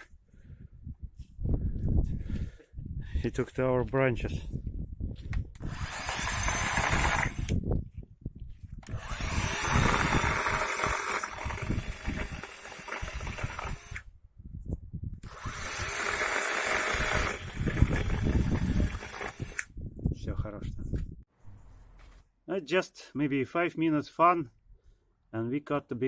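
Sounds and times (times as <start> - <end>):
cordless chainsaw running: 5.6 - 7.6, 8.8 - 14.0, 15.2 - 19.7.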